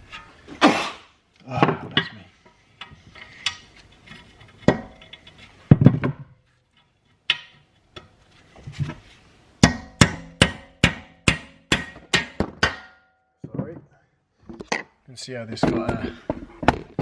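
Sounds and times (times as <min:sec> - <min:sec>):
hammer striking steel: 0:09.6 - 0:13.2.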